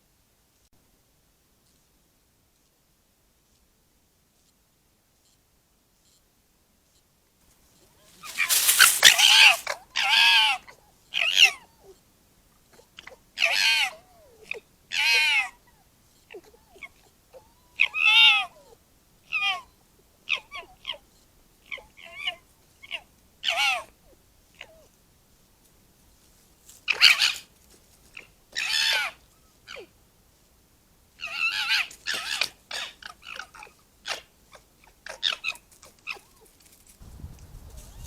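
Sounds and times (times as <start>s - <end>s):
deer screaming calls: 8.1s - 10.6s.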